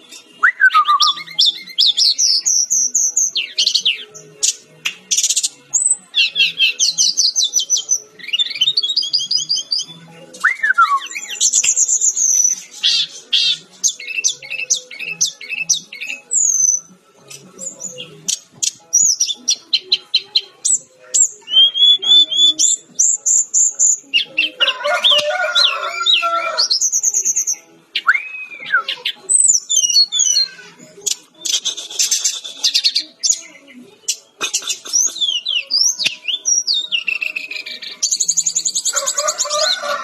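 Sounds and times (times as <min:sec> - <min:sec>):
bird singing whistles and trills: 0:00.1 - 0:24.6, 0:25.5 - 0:39.8
bird harsh chattering: 0:28.1 - 0:33.4, 0:34.1 - 0:35.9.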